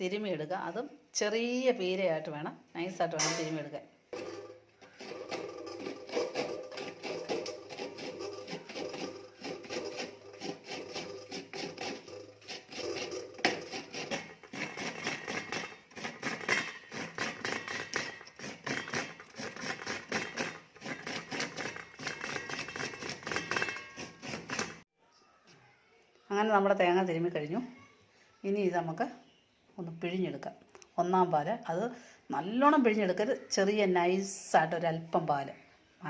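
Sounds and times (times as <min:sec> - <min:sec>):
coconut grater scraping: 0:04.2 - 0:24.8.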